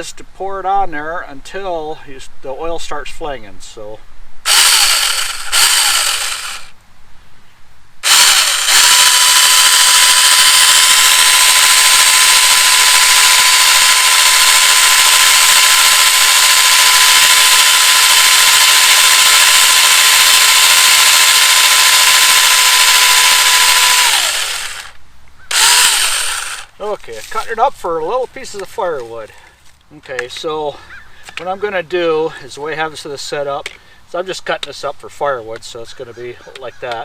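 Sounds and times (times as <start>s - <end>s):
electric chainsaw high whine: 4.5s - 6.8s, 8.0s - 27.5s.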